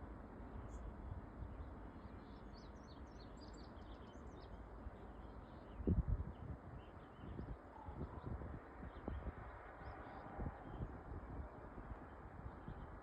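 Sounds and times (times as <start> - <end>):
small birds chirping: 0.6 - 9.3.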